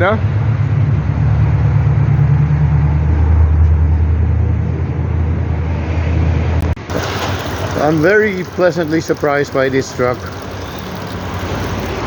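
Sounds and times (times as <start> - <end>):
vehicle engine rumbling: 6.6 - 12.0.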